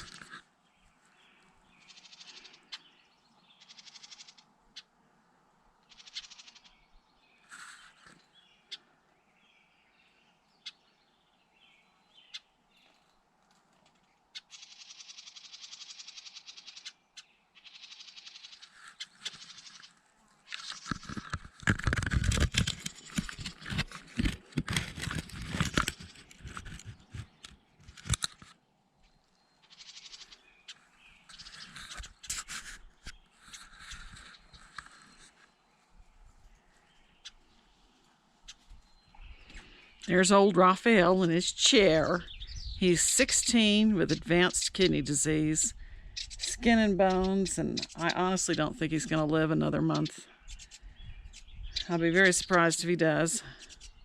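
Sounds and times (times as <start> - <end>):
birds calling: 0.0 - 4.9, 5.8 - 13.1, 14.2 - 54.0
rapid buzzing bird call: 3.6 - 4.4, 5.9 - 6.8, 14.4 - 17.0, 17.6 - 21.1, 29.6 - 30.4.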